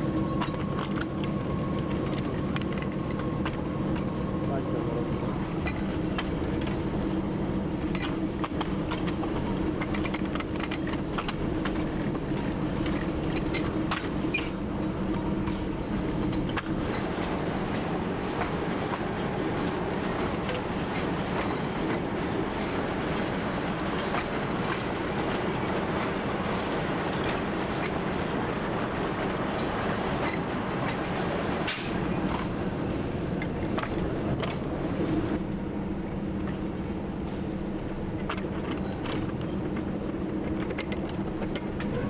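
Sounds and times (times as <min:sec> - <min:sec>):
diesel locomotive engine running: 0:00.0 - 0:42.0
train wheels clicking over rail joints: 0:05.4 - 0:35.6, 0:36.2 - 0:42.0.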